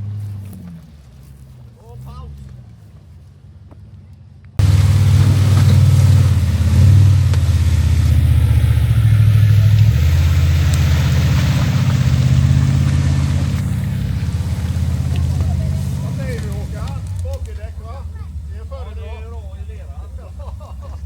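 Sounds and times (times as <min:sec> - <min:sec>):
engine running under load: 0:04.6 - 0:21.0.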